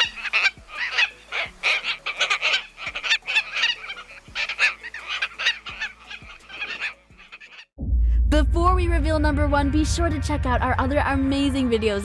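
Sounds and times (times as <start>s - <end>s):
bird harsh raspy calls: 0.0s - 7.7s.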